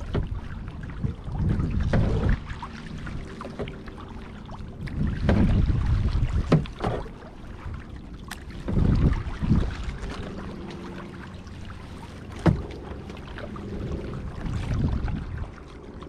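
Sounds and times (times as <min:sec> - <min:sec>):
paddle splashing in water: 0:00.0 - 0:16.0
paddle knocks: 0:04.8 - 0:09.2, 0:12.1 - 0:14.0.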